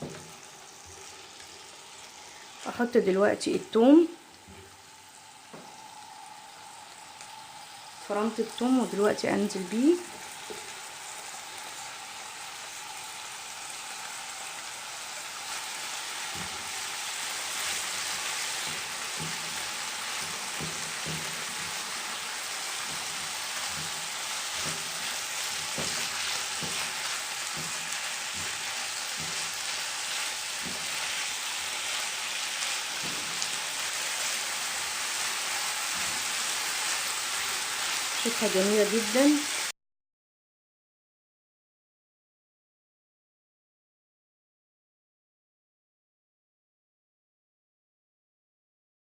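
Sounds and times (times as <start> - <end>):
food sizzling in oil: 0.0 - 39.7
spoon knocking against pan: 20.2 - 21.7, 22.8 - 25.0, 25.6 - 29.6.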